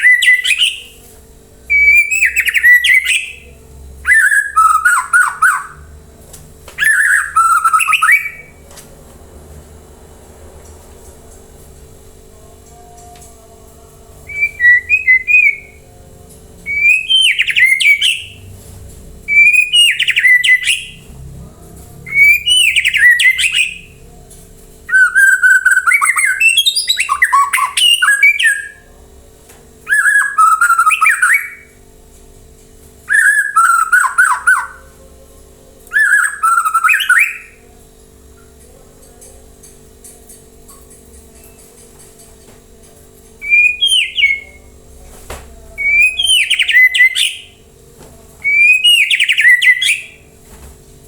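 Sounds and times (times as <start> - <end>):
songbird whistling and rattling: 0.0 - 1.0, 1.7 - 5.9, 6.8 - 8.6, 14.3 - 15.9, 16.6 - 18.5, 19.2 - 21.1, 22.0 - 24.0, 24.9 - 28.9, 29.9 - 31.8, 33.0 - 35.0, 35.9 - 37.6, 43.4 - 44.7, 45.8 - 47.6, 48.3 - 50.3.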